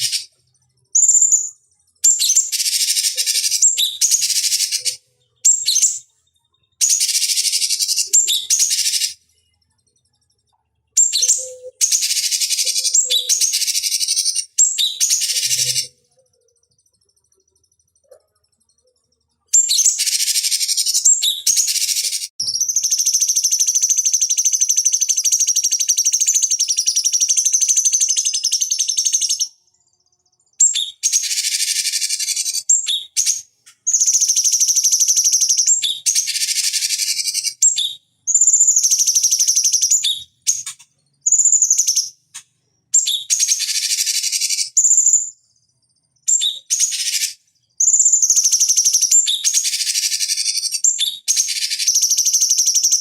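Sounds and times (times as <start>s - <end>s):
bulbul singing trills and whistles: 0.0s - 53.0s.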